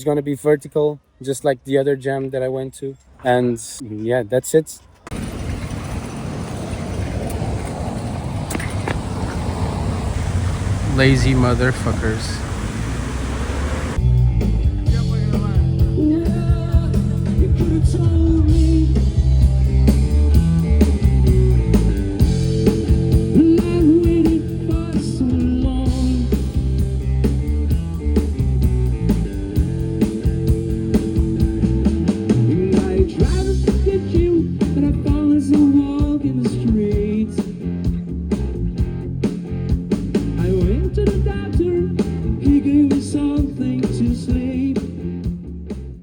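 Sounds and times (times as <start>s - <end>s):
drum kit: 14.0s - 45.5s.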